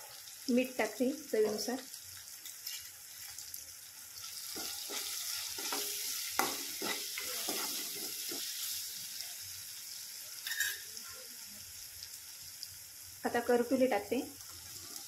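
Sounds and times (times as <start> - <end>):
masala sizzling in hot oil: 0.0 - 15.0
metal spoon scraping pan: 4.4 - 8.6, 10.4 - 10.9.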